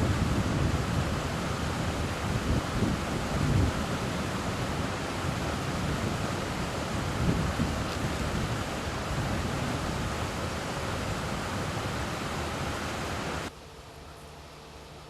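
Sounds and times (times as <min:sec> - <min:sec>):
river water rushing: 0:00.0 - 0:13.5.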